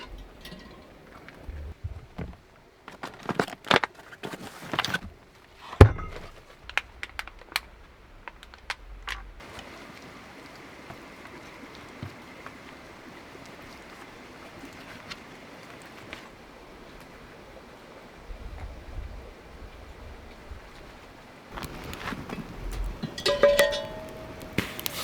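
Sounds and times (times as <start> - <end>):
cookware knocking and clinking: 0.0 - 1.6, 5.8 - 6.3, 23.0 - 24.8
steady hiss: 6.3 - 15.2, 21.5 - 25.0.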